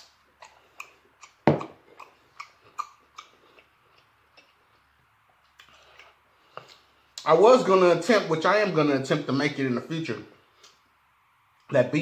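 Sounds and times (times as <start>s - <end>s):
chewing and lip-smacking: 0.0s - 7.3s
glass bowl set down with thud: 1.5s - 1.8s.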